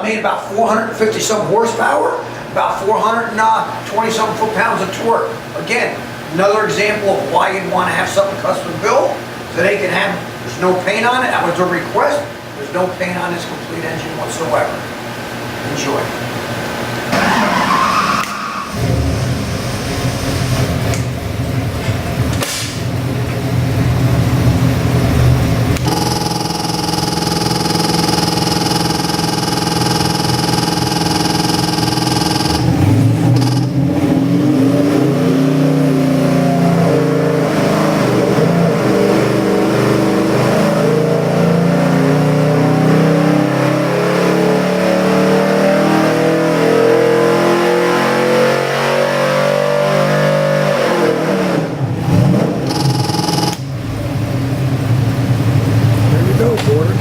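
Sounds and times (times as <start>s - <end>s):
car engine revving: 17.1s - 57.0s.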